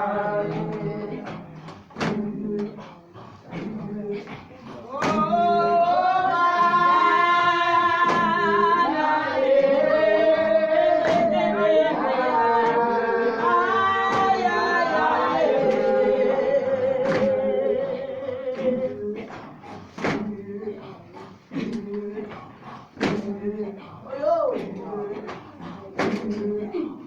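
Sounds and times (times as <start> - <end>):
group singing a hymn: 0.0 - 27.0
sharp clap or knock: 0.5 - 2.7, 4.3 - 5.3, 8.0 - 8.4, 11.0 - 11.4, 14.0 - 14.4, 17.0 - 17.4, 18.6 - 20.3, 23.0 - 23.3, 26.0 - 26.4.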